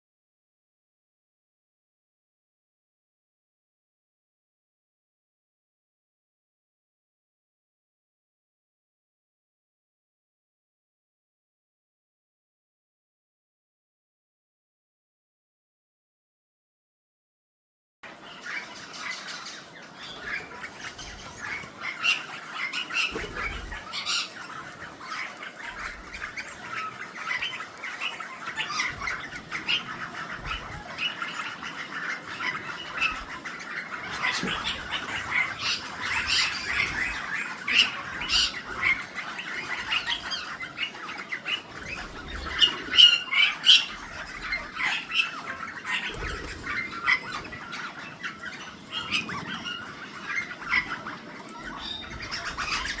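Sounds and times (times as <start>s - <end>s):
parrots squawking and chattering: 18.1s - 53.0s.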